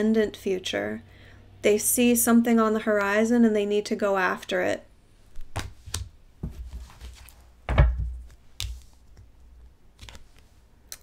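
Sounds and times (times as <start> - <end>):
heavy thump on a table: 7.7 - 8.2.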